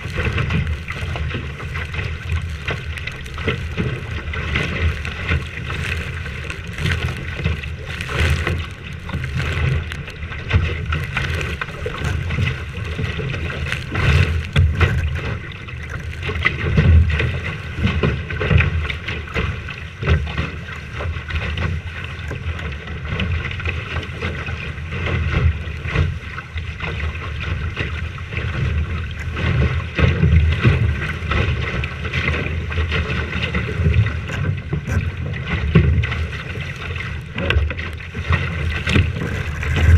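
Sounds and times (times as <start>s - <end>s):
wind buffeting microphone: 28.0s - 39.9s.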